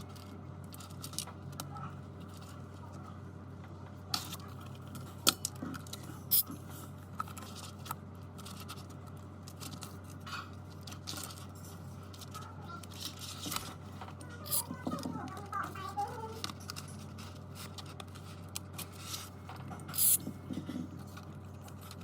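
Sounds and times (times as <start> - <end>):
steady low hum: 0.0 - 22.0
small tools clicking and tapping: 7.2 - 22.0.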